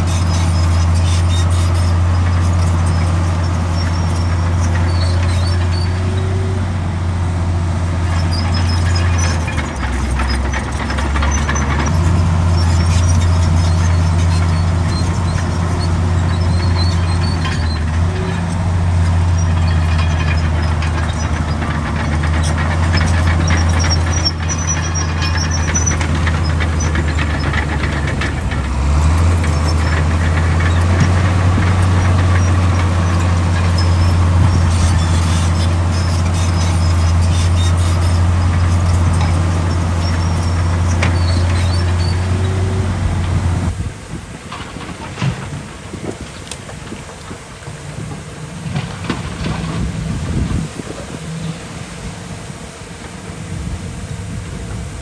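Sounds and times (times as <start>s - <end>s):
metallic squeaks and clanks: 0.0s - 43.8s
heavy diesel engine running: 0.0s - 55.0s.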